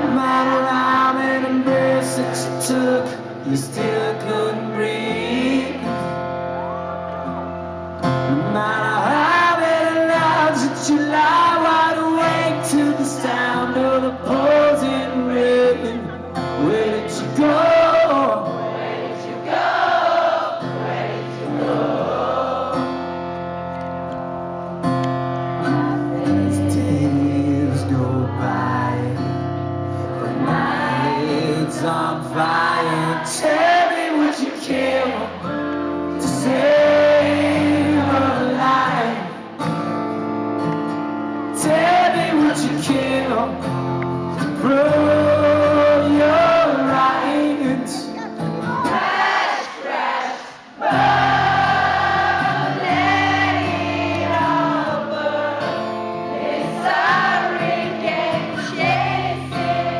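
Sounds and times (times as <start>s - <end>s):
man singing: 0.0s - 6.2s, 8.0s - 18.7s, 25.6s - 39.8s, 41.4s - 49.0s
strummed acoustic guitar: 0.0s - 49.2s, 50.8s - 59.9s.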